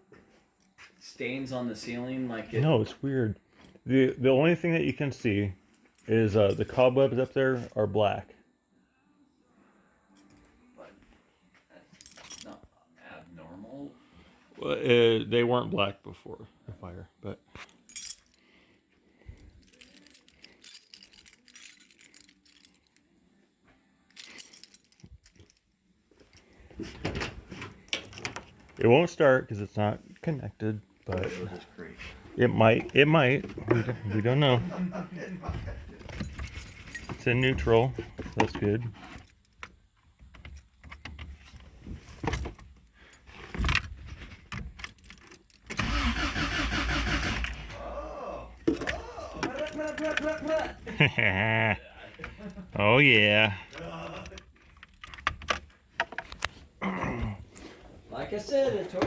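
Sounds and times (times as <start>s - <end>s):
car keys jangling: 4.9s - 7.8s, 17.8s - 18.4s, 19.4s - 23.1s, 24.1s - 25.6s, 26.3s - 28.9s, 32.5s - 47.8s, 48.6s - 51.3s, 52.1s - 56.5s
starter motor cranking engine: 45.8s - 47.8s.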